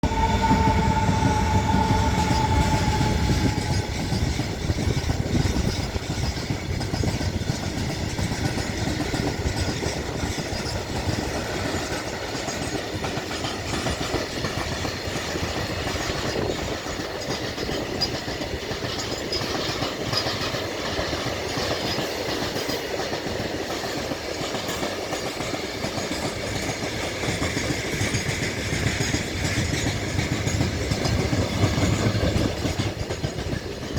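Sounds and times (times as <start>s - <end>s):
high steady tone: 0.0s - 4.6s
train wheels over rails: 0.0s - 33.9s.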